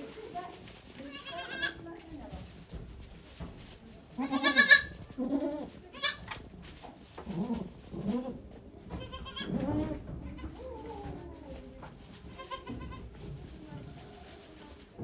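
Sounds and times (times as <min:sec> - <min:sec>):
goats bleating: 0:04.2 - 0:06.3, 0:08.2 - 0:10.5.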